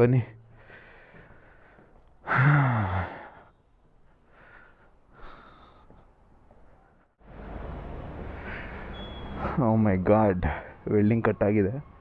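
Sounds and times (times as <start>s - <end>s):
faint breathing: 0.5s - 6.2s, 8.2s - 9.6s
man sighing: 2.2s - 3.5s.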